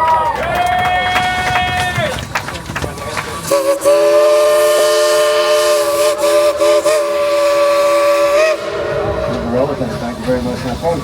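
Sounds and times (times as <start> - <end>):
steam hissing: 3.4 - 11.0
steam locomotive chime whistle: 3.5 - 9.5.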